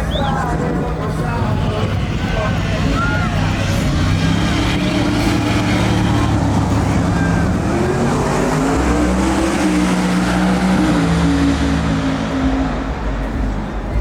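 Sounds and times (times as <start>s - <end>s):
truck engine revving hard: 0.0s - 14.0s.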